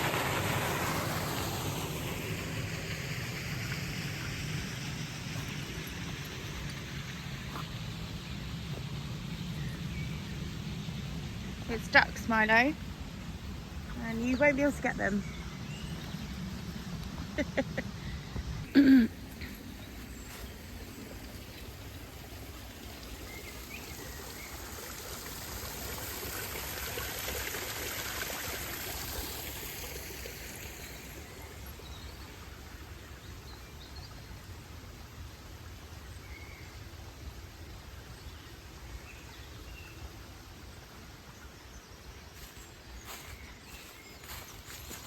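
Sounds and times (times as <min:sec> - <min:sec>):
steady rushing hiss: 0:00.0 - 0:33.0.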